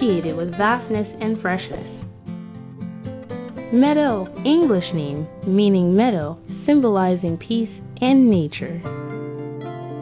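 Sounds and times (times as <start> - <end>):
woman's voice: 0.0 - 2.1, 3.7 - 8.9
acoustic guitar music: 0.0 - 10.0.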